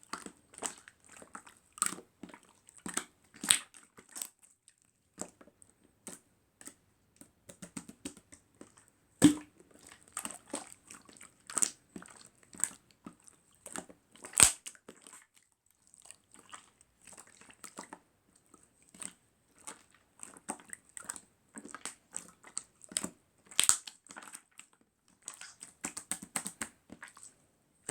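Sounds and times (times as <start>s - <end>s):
slime being squished by hand: 13.8s - 15.2s.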